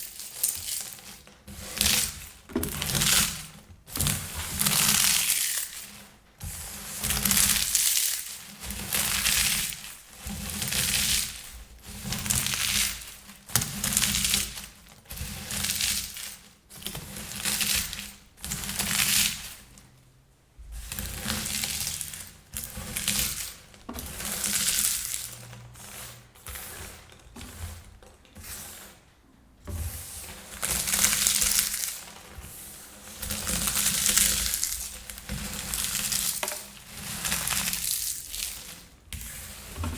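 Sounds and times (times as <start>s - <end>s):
popcorn crunching by hand: 4.7s - 6.0s, 24.2s - 26.0s, 33.3s - 38.9s.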